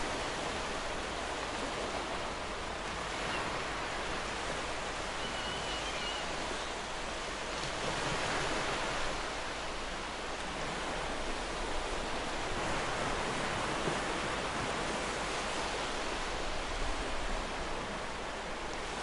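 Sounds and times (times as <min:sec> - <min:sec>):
sea waves breaking on beach: 0:00.0 - 0:19.0.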